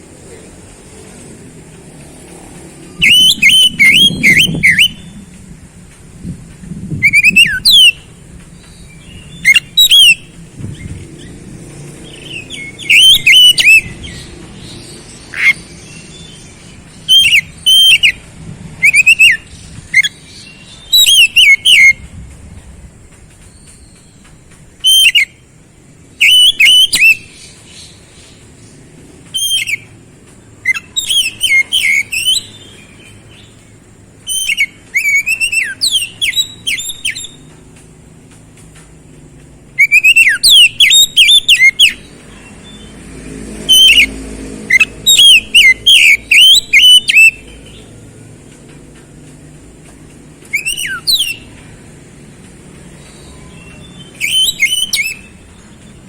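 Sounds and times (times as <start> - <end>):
bird singing whistled notes: 2.7 - 5.4, 6.9 - 22.1, 23.4 - 25.5, 26.1 - 30.0, 30.6 - 33.6, 34.2 - 37.6, 39.7 - 43.0, 43.6 - 48.0, 50.4 - 51.6, 52.8 - 56.0.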